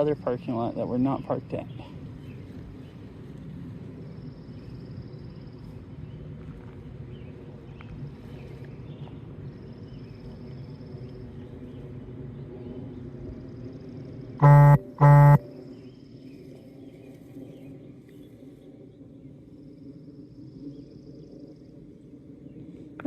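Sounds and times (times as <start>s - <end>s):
low outdoor rumble: 0.0s - 23.0s
buzzy horn beeps: 14.4s - 15.6s.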